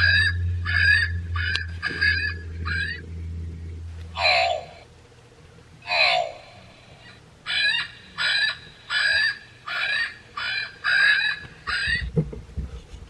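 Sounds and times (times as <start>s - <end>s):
toy speaker crow cawing: 0.0s - 3.0s, 4.2s - 4.9s, 5.8s - 12.1s.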